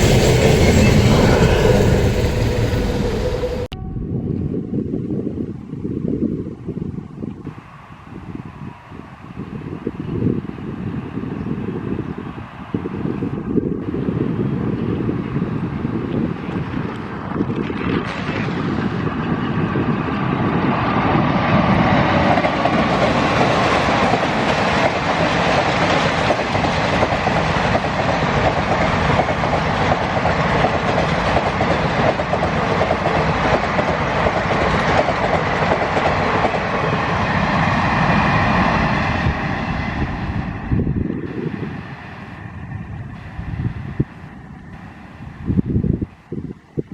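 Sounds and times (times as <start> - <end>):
train wheels clattering on rails: 16.6 - 40.6.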